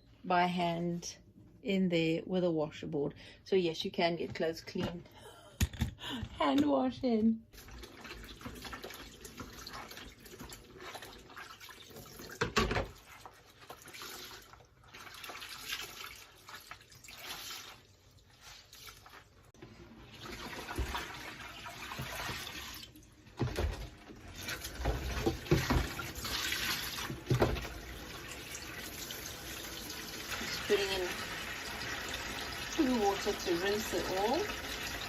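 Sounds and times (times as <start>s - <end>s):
water running in a sink: 7.5s - 35.0s
laundry splashing in water: 7.6s - 35.0s.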